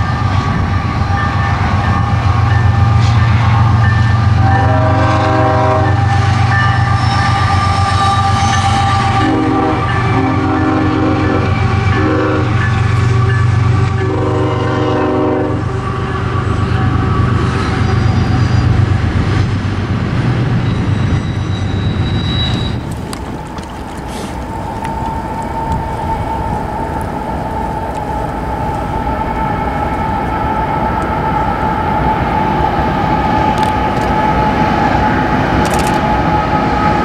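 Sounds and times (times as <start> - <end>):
locomotive horn blasts: 0.0 - 18.6
diesel locomotive engines rumbling: 0.0 - 37.0.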